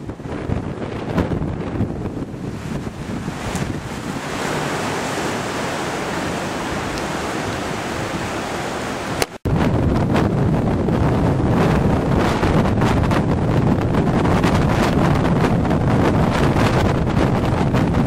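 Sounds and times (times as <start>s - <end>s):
storm wind: 0.0s - 18.0s
surf rushing: 0.0s - 18.0s
wind buffeting microphone: 0.0s - 18.0s.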